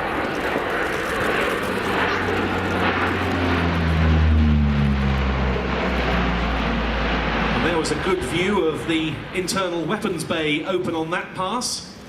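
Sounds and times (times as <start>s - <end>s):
propeller aircraft passing overhead: 0.0s - 12.0s.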